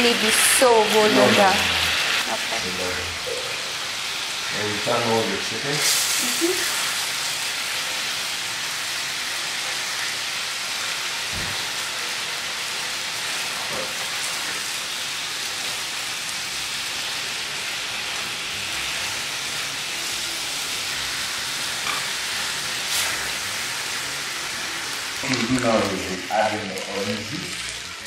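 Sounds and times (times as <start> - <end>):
chicken frying in oil: 0.0 - 28.0
metal spatula turning food: 21.8 - 22.2.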